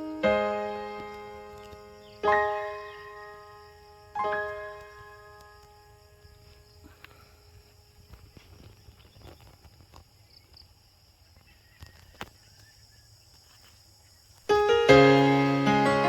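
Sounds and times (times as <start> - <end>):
piano music: 0.0 - 5.7, 14.5 - 16.0.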